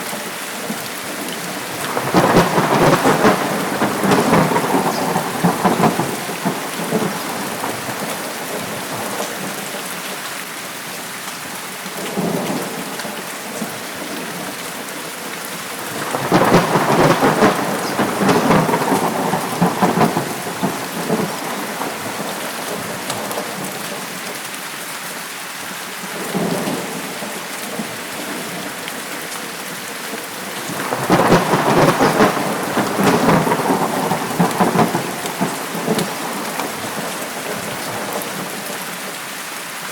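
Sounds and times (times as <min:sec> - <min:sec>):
heavy rain: 0:00.0 - 0:39.9
thunder rolling: 0:01.5 - 0:09.5, 0:15.8 - 0:24.1, 0:30.4 - 0:38.9.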